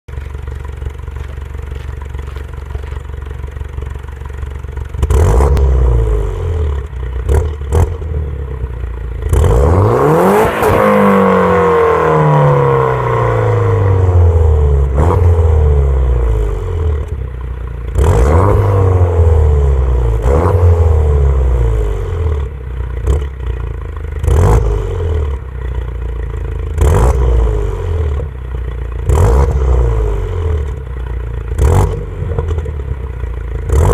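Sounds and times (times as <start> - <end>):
car engine revving: 4.9 - 17.2, 17.8 - 23.6, 24.2 - 25.4, 26.6 - 28.3, 29.0 - 30.8, 31.4 - 33.9.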